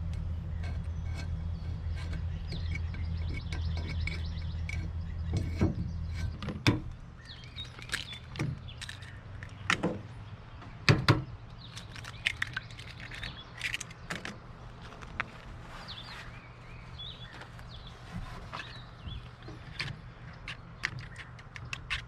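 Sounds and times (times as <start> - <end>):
birds chirping: 0.0 - 22.0
low steady hum: 0.0 - 22.0
sharp knocks and clunks: 2.0 - 7.0, 9.6 - 11.3.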